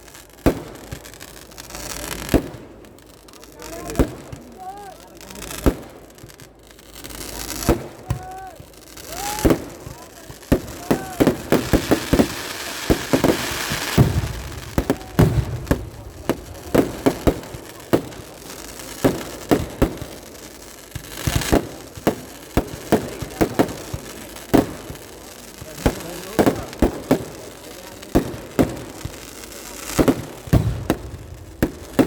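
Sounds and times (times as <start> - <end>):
fireworks bangs: 0.0 - 32.0
hissing crackle: 0.0 - 32.0.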